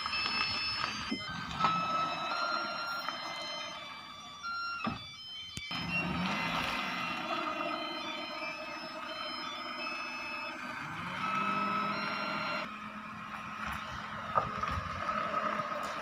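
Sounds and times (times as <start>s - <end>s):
high electronic beeping melody: 0.0s - 14.8s
car engine revving: 5.7s - 16.0s.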